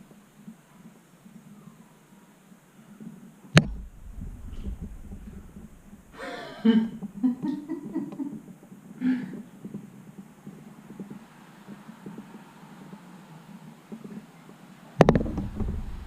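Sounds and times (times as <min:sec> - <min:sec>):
sharp knock: 0:03.6 - 0:06.2, 0:15.0 - 0:16.0
handling rumble: 0:03.6 - 0:08.0, 0:15.0 - 0:16.0
person breathing: 0:06.0 - 0:06.8, 0:09.0 - 0:09.4.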